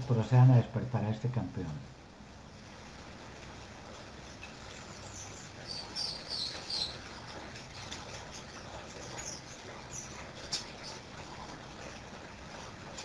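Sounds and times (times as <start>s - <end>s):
low steady hiss: 0.0s - 13.0s
faint bird chirps: 4.8s - 11.1s.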